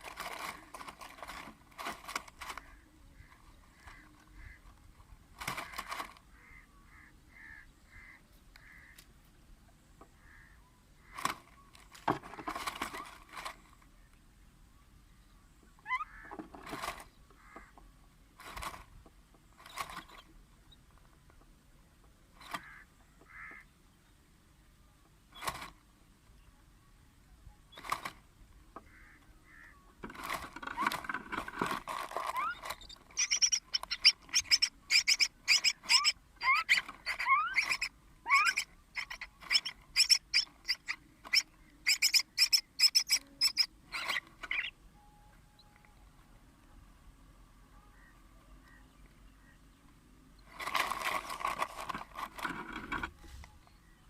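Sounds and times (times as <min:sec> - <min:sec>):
high-pitched chick begging calls: 0:32.2 - 0:44.8
myna harsh calls: 0:33.2 - 0:44.7.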